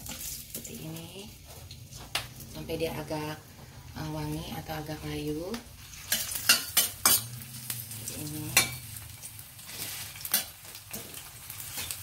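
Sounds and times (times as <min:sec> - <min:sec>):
onion sizzling in hot oil: 0:00.0 - 0:12.0
metal spatula scraping a wok: 0:05.8 - 0:12.0.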